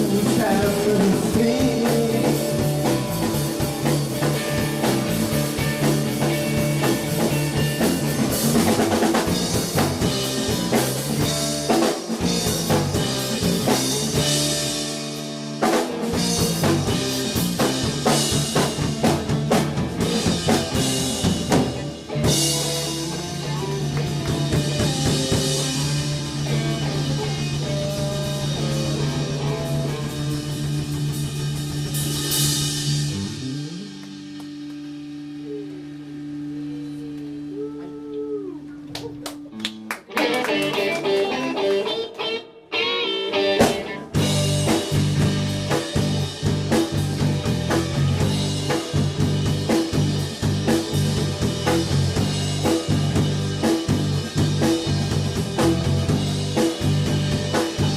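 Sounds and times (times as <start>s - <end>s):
busy drumming: 0.0s - 38.0s, 39.1s - 42.0s, 43.4s - 57.9s
live band music: 0.0s - 57.9s.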